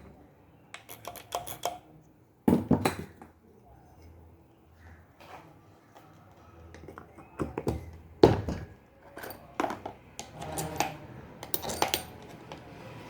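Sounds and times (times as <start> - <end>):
metal parts and tools clinking: 0.7 - 1.8, 8.4 - 12.8.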